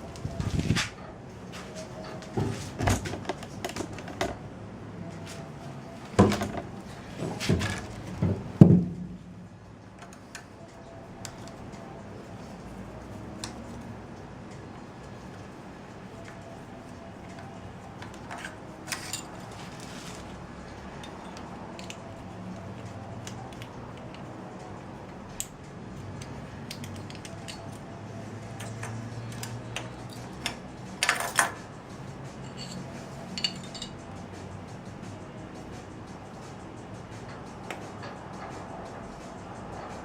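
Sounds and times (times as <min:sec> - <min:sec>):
metal tools clinking and clattering: 0:17.3 - 0:20.3, 0:20.9 - 0:22.1, 0:28.6 - 0:31.6, 0:32.4 - 0:34.0.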